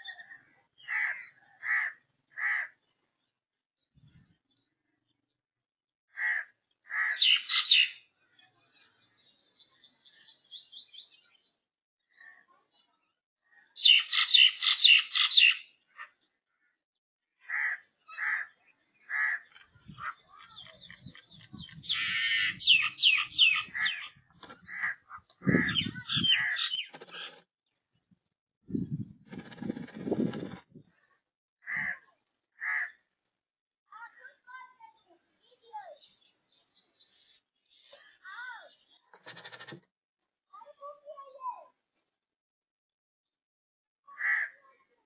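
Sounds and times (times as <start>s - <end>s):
birds chirping: 6.4s - 16.8s, 17.4s - 33.3s, 34.0s - 39.8s.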